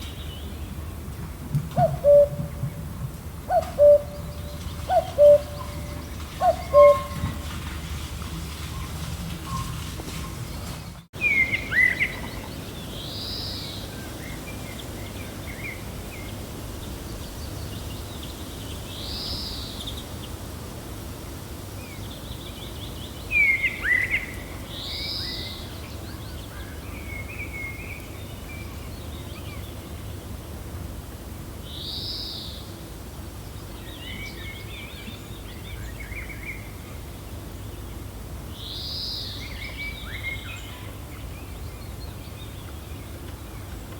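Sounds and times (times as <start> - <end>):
low wind: 0.0 - 43.9
high arched bird call: 3.5 - 7.2.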